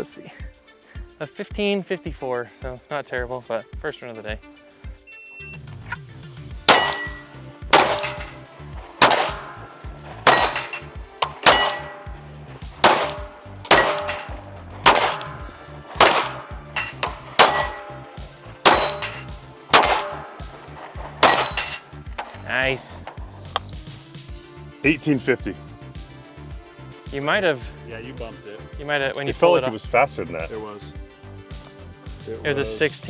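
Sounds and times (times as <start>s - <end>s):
steel target plate clanging: 6.7s - 23.2s
pistol shots: 6.7s - 23.4s.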